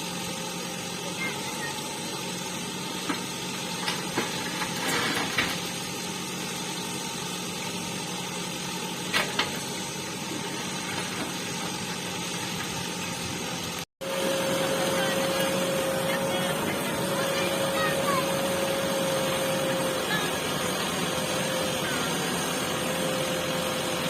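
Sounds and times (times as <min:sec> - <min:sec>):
diesel engine running: 0:00.0 - 0:24.0
steady whine: 0:14.0 - 0:24.0.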